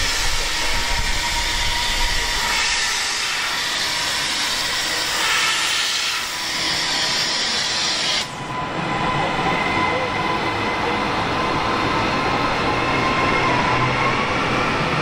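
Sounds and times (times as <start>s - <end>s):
train hissing: 0.0s - 8.6s.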